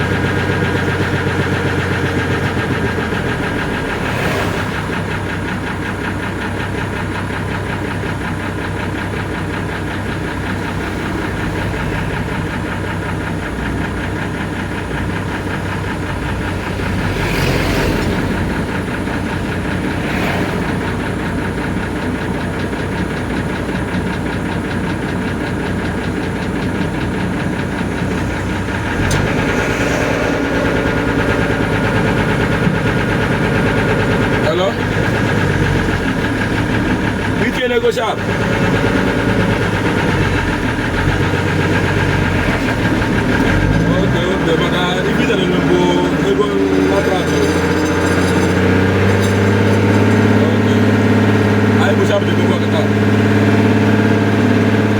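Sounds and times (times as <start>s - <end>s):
engine running: 0.0s - 54.9s.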